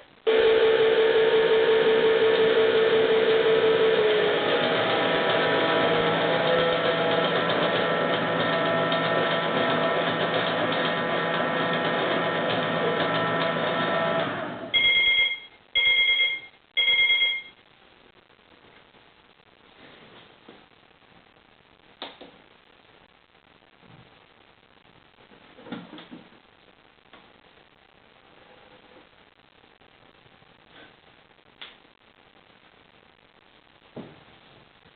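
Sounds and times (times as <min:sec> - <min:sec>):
toy washing machine motor whirring: 0:00.9 - 0:14.5.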